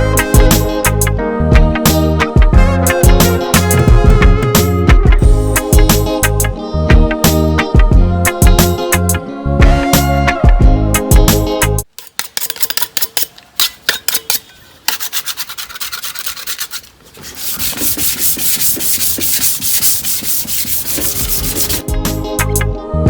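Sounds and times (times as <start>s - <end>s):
hand sanding scraping strokes: 14.9s - 21.8s.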